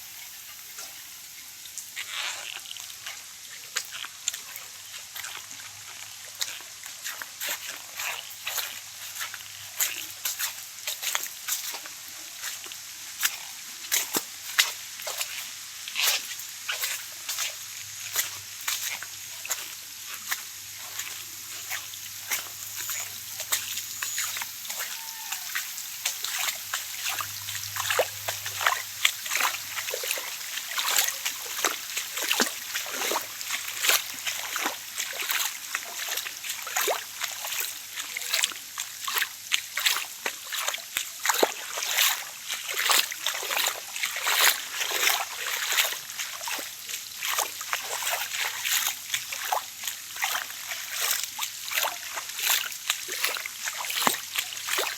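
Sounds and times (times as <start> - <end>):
rain falling: 12.4 - 37.8
water drops splashing: 16.8 - 37.7.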